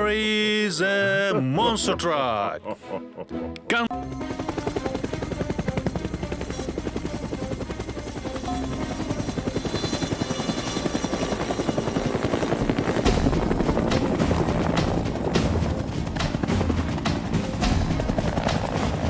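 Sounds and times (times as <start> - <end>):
helicopter rotor chopping: 3.9 - 19.0.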